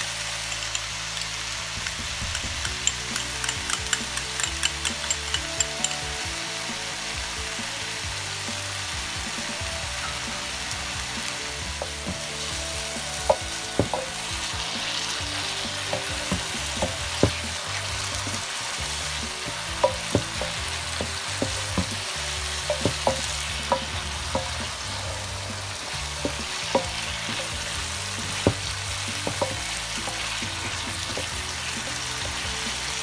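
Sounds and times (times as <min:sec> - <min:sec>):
eggs sizzling in a skillet: 0:00.0 - 0:33.0.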